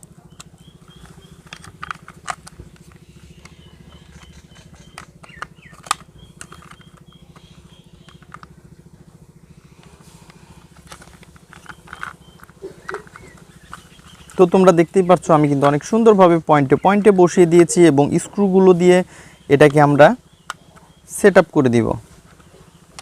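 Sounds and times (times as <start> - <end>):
plastic toy parts clicking: 0.0 - 8.5, 10.2 - 16.0
steady low hum: 0.0 - 23.0.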